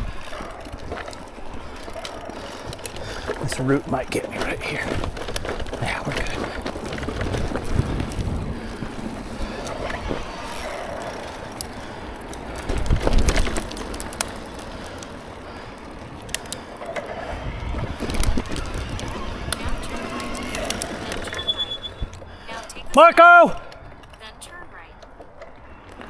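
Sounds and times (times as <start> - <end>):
bike jolt: 0.0 - 24.5
bike clicks and rattles: 0.0 - 26.0
bike tyres rumbling on trail: 0.0 - 26.0
wind on microphone: 4.8 - 10.6, 17.2 - 22.1.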